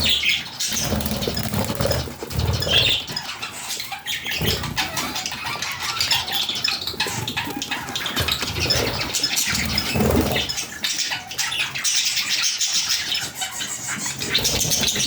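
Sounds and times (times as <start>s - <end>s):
budgerigars chirping: 0.0s - 15.0s.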